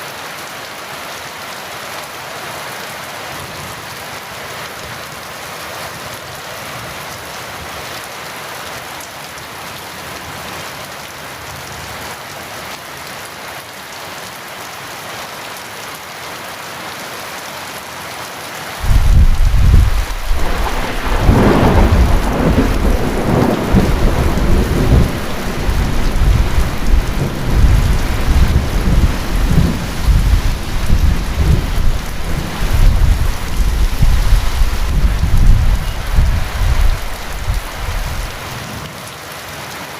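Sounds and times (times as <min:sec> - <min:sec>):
heavy rain: 0:00.0 - 0:39.9
thunder: 0:18.8 - 0:38.5.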